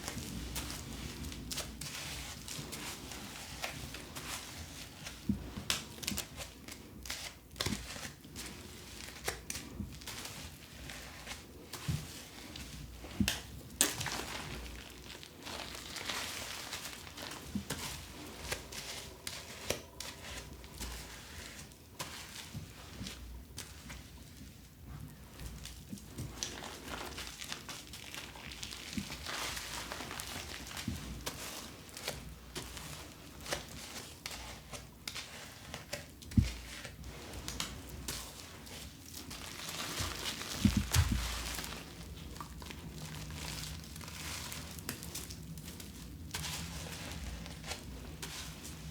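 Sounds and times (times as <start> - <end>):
packaging crinkling: 13.8 - 17.7, 26.4 - 30.9, 39.1 - 48.7.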